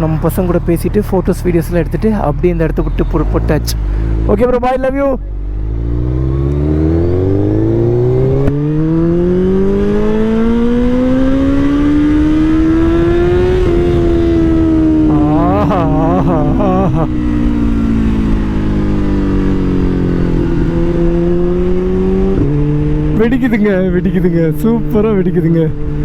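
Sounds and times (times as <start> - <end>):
motorcycle engine revving: 5.2 - 26.0.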